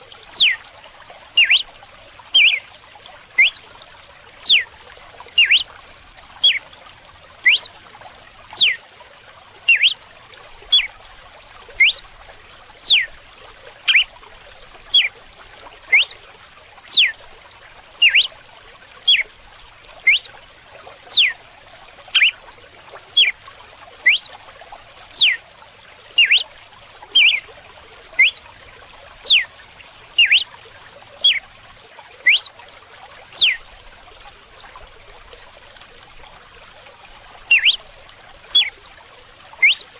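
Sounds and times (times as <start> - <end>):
trickle of running water: 0.0 - 39.9
bird whistling sharp notes: 0.3 - 0.6, 1.4 - 1.7, 2.4 - 2.6, 3.4 - 3.6, 4.4 - 4.6, 5.4 - 5.6, 7.5 - 7.7, 8.6 - 8.8, 9.7 - 10.0, 11.8 - 12.0, 12.8 - 13.1, 13.9 - 14.1, 15.9 - 16.2, 16.9 - 17.1, 18.0 - 18.3, 20.1 - 20.3, 21.1 - 21.4, 22.2 - 22.4, 24.0 - 24.4, 25.2 - 25.4, 26.2 - 26.5, 27.2 - 27.4, 28.2 - 28.4, 29.2 - 29.5, 30.2 - 30.5, 32.3 - 32.5, 33.4 - 33.6, 37.5 - 37.8, 39.6 - 39.9.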